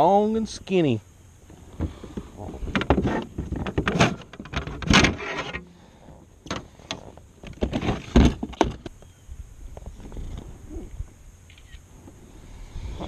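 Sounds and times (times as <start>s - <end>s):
rustling scrape: 2.5s - 5.6s.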